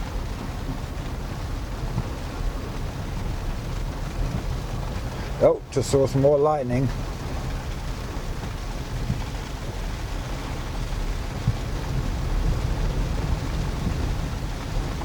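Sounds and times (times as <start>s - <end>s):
rain hissing on vehicle: 0.0s - 15.0s
truck rumbling on dirt road: 0.0s - 15.0s.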